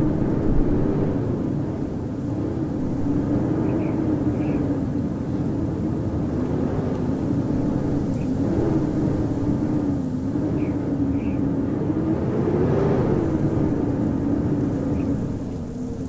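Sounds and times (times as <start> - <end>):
howling blizzard wind: 0.0 - 16.0.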